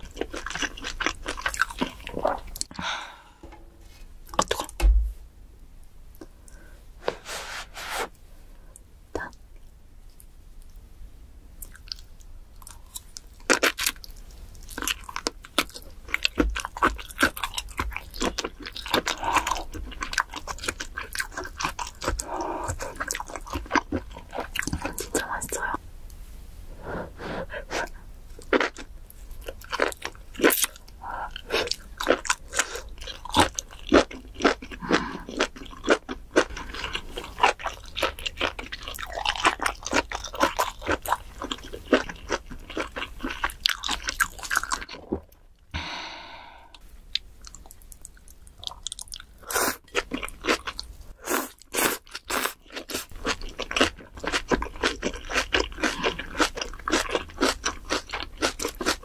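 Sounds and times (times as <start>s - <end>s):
wet crunchy chewing: 0.0s - 2.7s, 28.4s - 45.2s, 47.4s - 59.0s.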